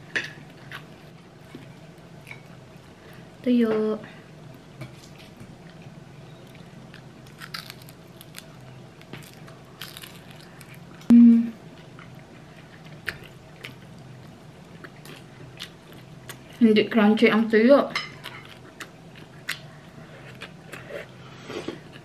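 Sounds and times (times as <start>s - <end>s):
person chewing crunchy food: 5.1s - 11.1s, 11.8s - 16.6s, 18.2s - 22.0s
person humming briefly: 11.1s - 11.6s.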